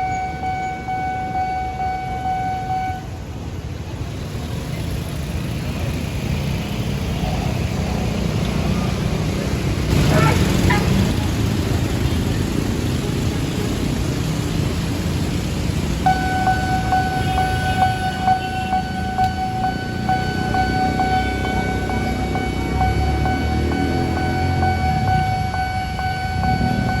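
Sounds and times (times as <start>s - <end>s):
crossing warning bell ringing: 0.0s - 3.2s, 15.9s - 27.0s
road traffic rumble: 0.0s - 27.0s.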